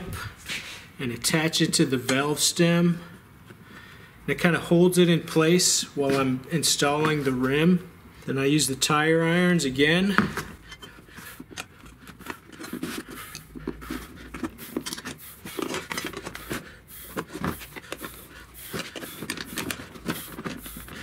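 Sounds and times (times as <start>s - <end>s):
tire irons scraping and clicking: 9.7s - 21.0s.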